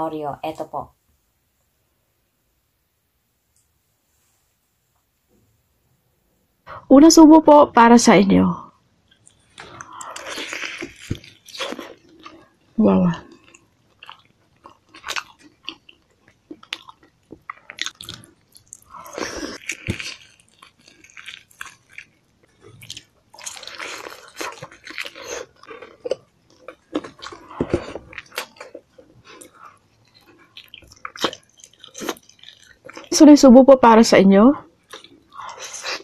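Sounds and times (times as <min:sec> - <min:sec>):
wet sticky chewing: 0:09.1 - 0:12.5, 0:13.2 - 0:33.2, 0:34.8 - 0:36.0.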